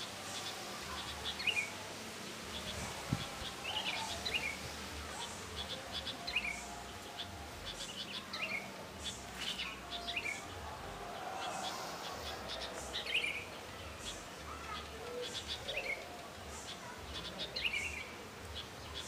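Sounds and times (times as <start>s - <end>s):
faint ticking bird calls: 11.6s - 19.0s.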